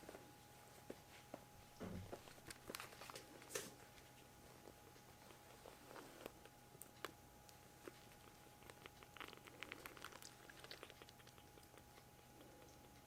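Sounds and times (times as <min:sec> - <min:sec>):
kitten suckling wet clicks: 0:06.4 - 0:13.0.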